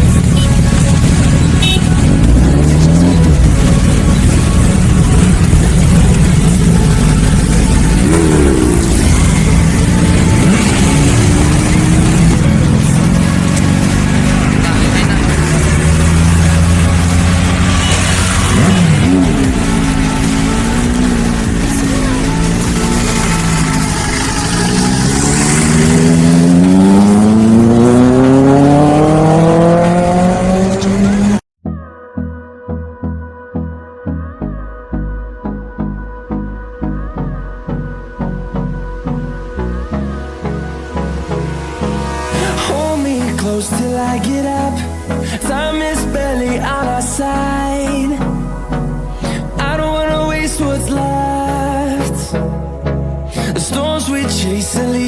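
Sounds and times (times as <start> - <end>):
engine revving: 0.0 - 31.4, 39.8 - 55.0
vehicle engines running: 0.0 - 31.4
background music with steady beat: 0.0 - 55.0.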